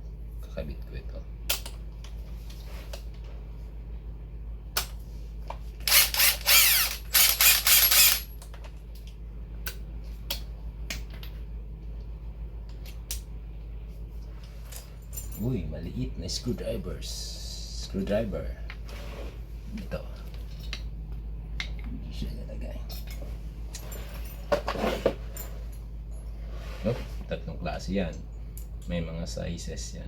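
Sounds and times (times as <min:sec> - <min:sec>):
ratchet wrench clicking: 0:05.9 - 0:08.3
metal tools clicking: 0:05.9 - 0:08.4.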